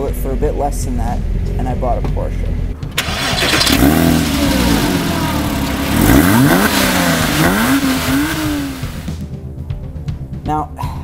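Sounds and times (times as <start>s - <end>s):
car engine revving: 2.9s - 9.3s.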